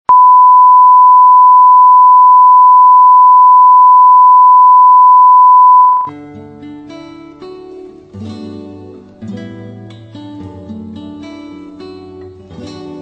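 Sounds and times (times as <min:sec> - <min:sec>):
steady test tone beep: 0:00.1 - 0:06.1
acoustic guitar music: 0:06.1 - 0:13.0.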